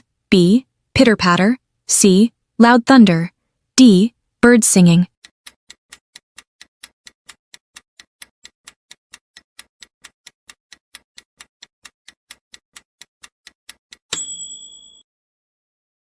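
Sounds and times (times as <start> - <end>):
clock ticking timer: 3.8 - 15.0.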